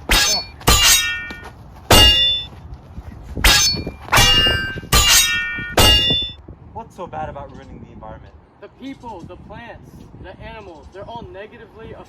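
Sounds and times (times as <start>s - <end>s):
metal clanging in a fight: 0.0s - 2.6s, 3.4s - 6.4s.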